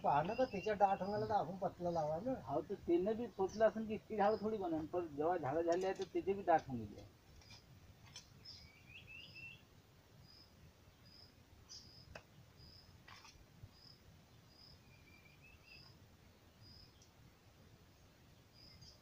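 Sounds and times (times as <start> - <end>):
bird chirping: 0.0 - 19.0
faint clicks: 16.9 - 17.2.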